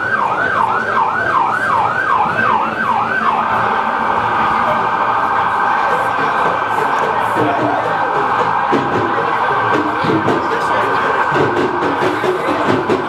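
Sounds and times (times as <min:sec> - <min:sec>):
electronic siren yelp and warble: 0:00.0 - 0:06.6.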